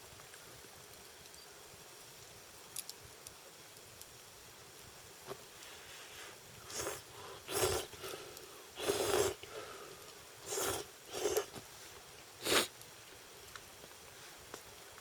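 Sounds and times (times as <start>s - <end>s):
person slurping noodles: 6.7s - 8.1s, 8.8s - 9.4s, 10.4s - 11.5s, 12.4s - 12.7s.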